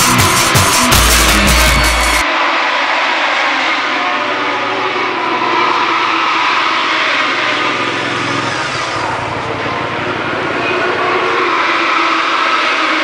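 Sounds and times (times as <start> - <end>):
racing motorcycle engines droning: 3.4 - 13.0.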